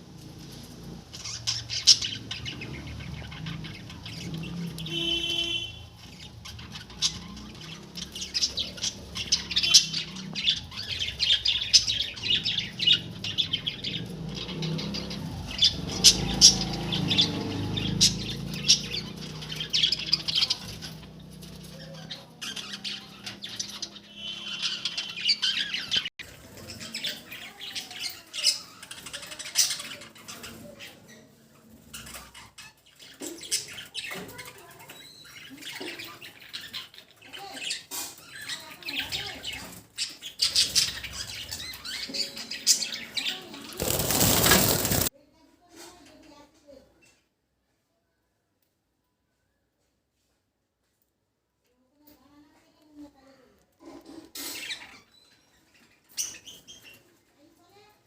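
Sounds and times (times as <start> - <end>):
budgerigars chattering and chirping: 1.1 - 45.1.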